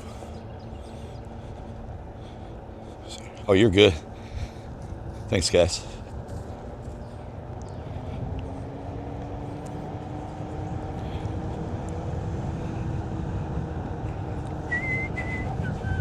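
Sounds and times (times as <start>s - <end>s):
wind on microphone: 6.1s - 16.0s.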